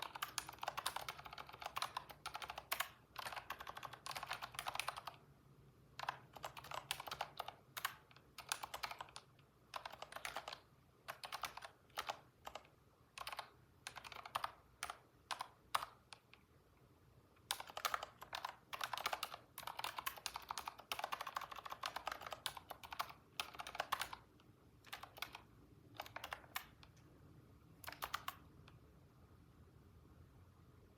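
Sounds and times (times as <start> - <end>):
typing on a computer keyboard: 0.0 - 5.3, 5.9 - 16.4, 17.4 - 27.1, 27.8 - 28.8.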